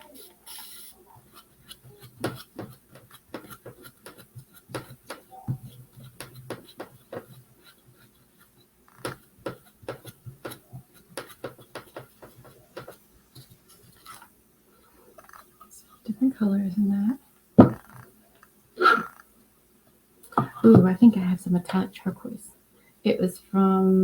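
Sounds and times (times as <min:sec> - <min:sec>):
paintbrush dabbing: 0:00.0 - 0:14.3
paint pots and tools handled: 0:00.0 - 0:14.4.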